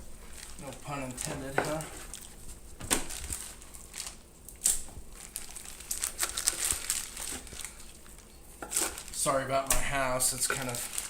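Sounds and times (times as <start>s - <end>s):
crinkling and crackling handling: 0.0s - 11.0s.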